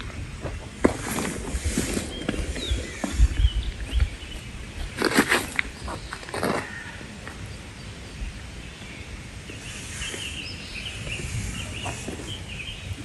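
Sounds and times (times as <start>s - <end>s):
birds chirping: 0.0s - 13.0s
river background noise: 0.0s - 13.0s
rustle or splash: 0.9s - 2.6s.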